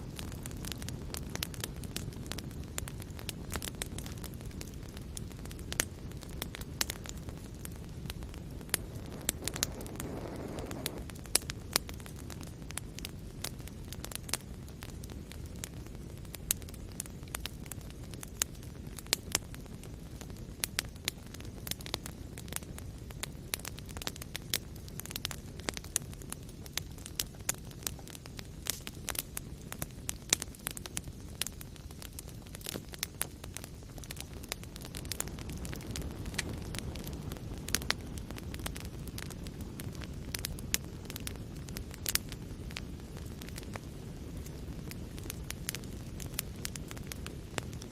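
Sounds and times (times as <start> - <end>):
fire flames rumbling: 0.0 - 47.9
fire hissing: 0.0 - 47.9
logs crackling and popping: 0.0 - 47.9.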